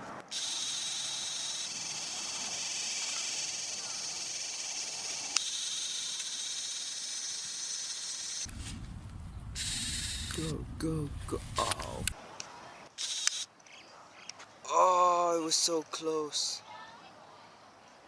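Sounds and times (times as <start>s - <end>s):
insects chorus: 0.3s - 8.6s, 9.4s - 10.8s
low rumbling noise: 8.5s - 12.2s.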